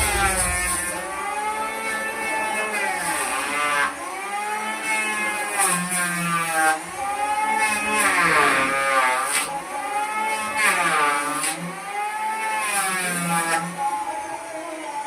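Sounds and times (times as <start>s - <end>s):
power tool cutting wood: 0.0s - 15.0s.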